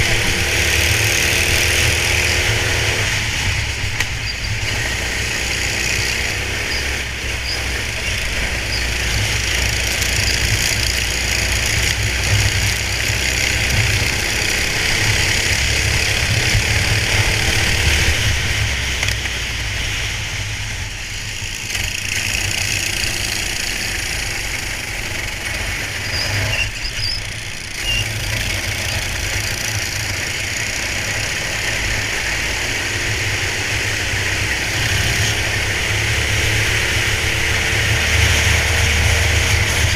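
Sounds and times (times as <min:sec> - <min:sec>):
constant rushing noise: 0:00.0 - 0:39.9
go-kart engine revving: 0:00.0 - 0:39.9.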